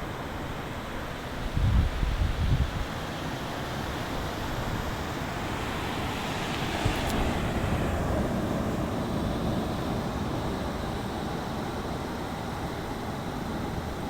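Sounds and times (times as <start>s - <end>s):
sea waves washing on shore: 4.4s - 11.3s.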